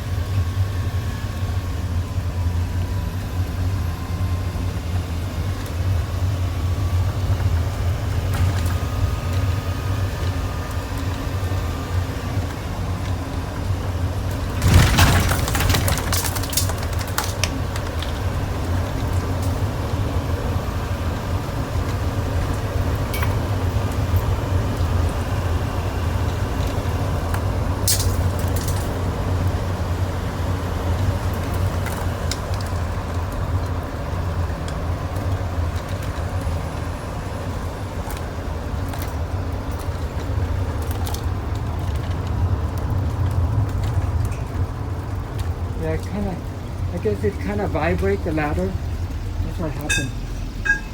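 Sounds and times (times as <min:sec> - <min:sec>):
bus engine and road drone: 0:00.0 - 0:50.9
rattles and knocks: 0:06.6 - 0:20.0, 0:21.8 - 0:25.3, 0:26.3 - 0:29.5, 0:38.0 - 0:50.9.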